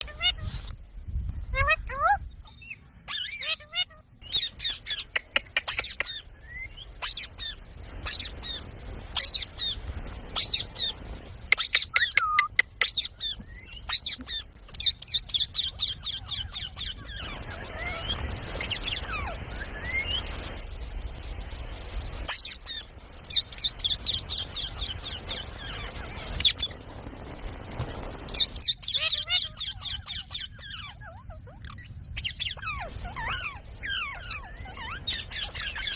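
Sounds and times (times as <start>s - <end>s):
parakeets squawking: 0.0s - 0.7s, 1.6s - 20.3s, 22.2s - 26.8s, 28.2s - 35.9s
parakeet gliding chirps: 1.6s - 35.9s.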